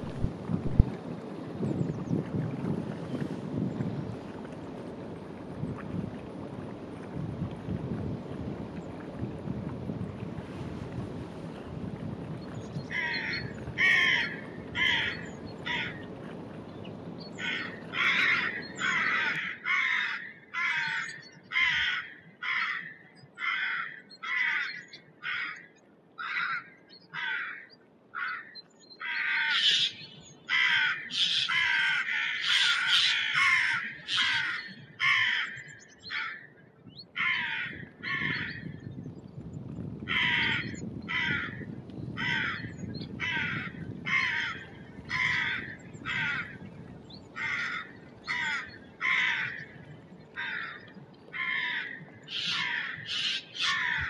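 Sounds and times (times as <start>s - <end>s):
birds cawing: 12.9s - 16.1s, 17.4s - 38.8s, 40.1s - 46.6s, 47.3s - 54.0s.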